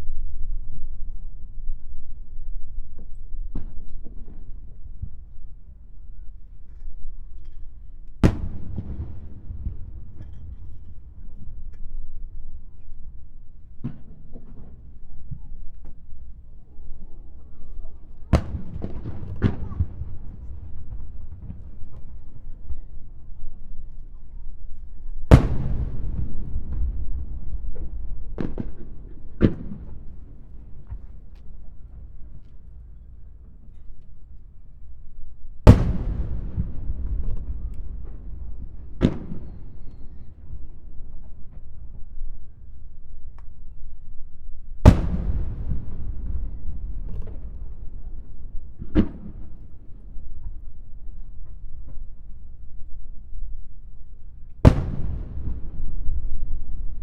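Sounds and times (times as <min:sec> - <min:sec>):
fireworks booming: 0:07.8 - 0:16.5, 0:18.0 - 0:42.6, 0:44.7 - 0:52.0, 0:54.5 - 0:57.0.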